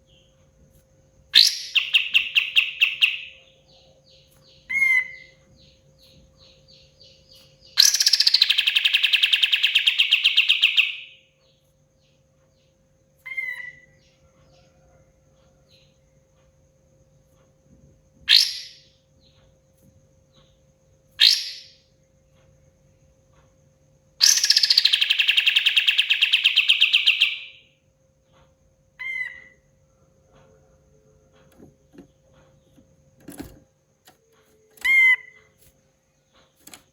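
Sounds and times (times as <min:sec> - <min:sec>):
faint steady hum: 0:00.0 - 0:36.9
songbird trilling: 0:01.3 - 0:11.2, 0:13.2 - 0:14.2, 0:18.3 - 0:18.9, 0:21.2 - 0:21.8, 0:24.2 - 0:27.7, 0:29.0 - 0:29.7, 0:34.6 - 0:35.6.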